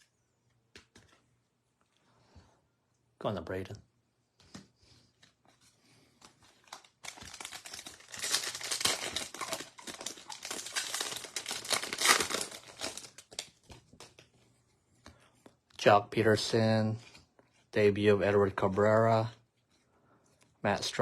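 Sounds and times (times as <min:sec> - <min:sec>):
foil wrapper tearing and crinkling: 0:06.5 - 0:14.0.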